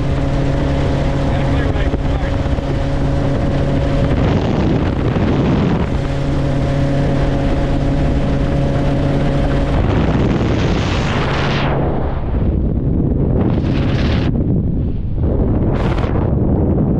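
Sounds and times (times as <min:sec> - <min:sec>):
helicopter engine and rotor drone: 0:00.0 - 0:10.4
wind noise on microphone: 0:00.0 - 0:16.9.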